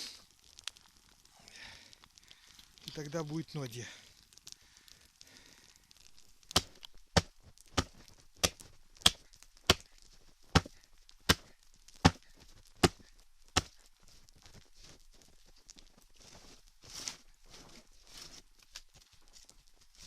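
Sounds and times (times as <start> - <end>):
axe chopping into dry wood: 6.5 - 9.9, 10.6 - 12.2, 12.8 - 13.0, 13.6 - 13.8.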